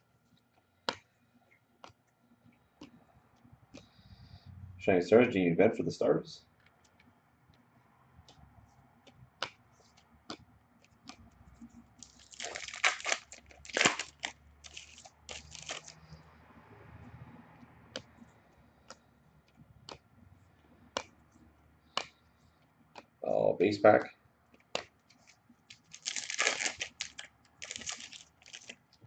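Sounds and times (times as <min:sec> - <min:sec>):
foil wrapper tearing and crinkling: 0:12.0 - 0:16.0, 0:25.7 - 0:28.8.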